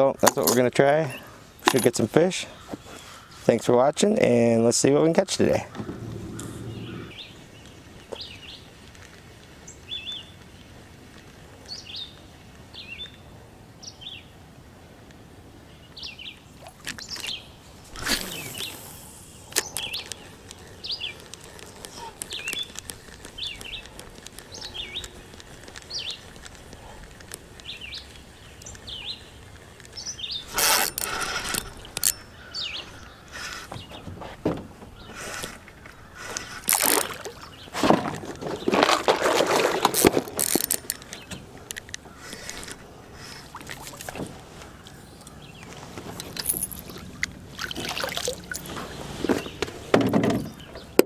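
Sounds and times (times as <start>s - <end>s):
birds chirping: 0.0s - 10.8s, 15.6s - 39.1s, 39.9s - 51.0s
fishing rod and reel handling: 16.6s - 27.7s, 29.5s - 32.3s, 35.1s - 37.5s, 38.5s - 49.8s.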